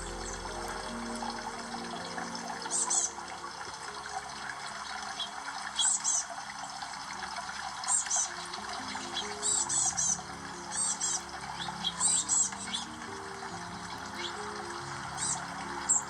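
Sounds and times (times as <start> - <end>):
water trickling: 0.0 - 16.0.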